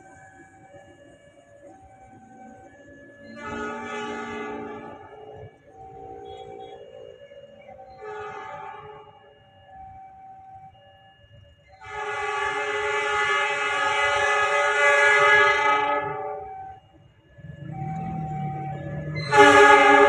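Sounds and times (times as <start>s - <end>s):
train horn blast: 3.2s - 5.0s, 8.0s - 9.0s, 11.8s - 16.7s, 19.2s - 20.0s.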